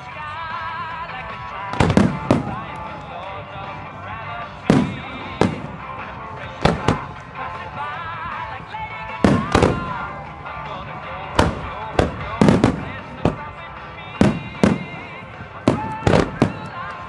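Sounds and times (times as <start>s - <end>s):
music playing: 0.0s - 17.0s
firework booms with echo: 1.7s - 2.8s, 4.7s - 5.8s, 6.6s - 7.2s, 9.2s - 10.1s, 11.4s - 13.5s, 14.2s - 16.8s.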